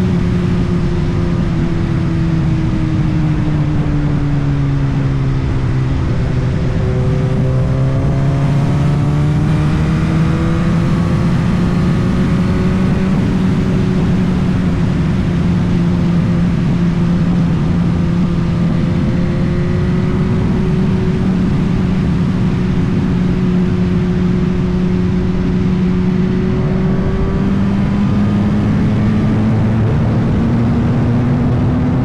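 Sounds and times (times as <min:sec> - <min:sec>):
motorcycle engine cruising: 0:00.0 - 0:32.0.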